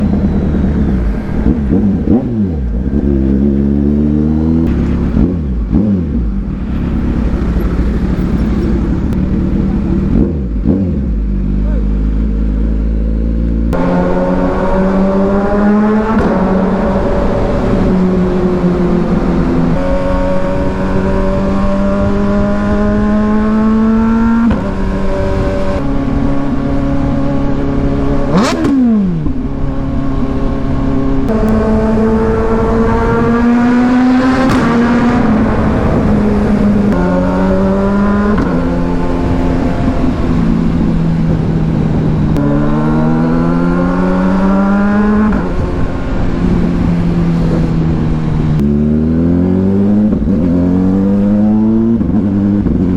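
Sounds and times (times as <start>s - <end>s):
motorcycle engine accelerating: 0.0s - 52.9s
sharp downward pitch sweep: 13.7s - 52.5s.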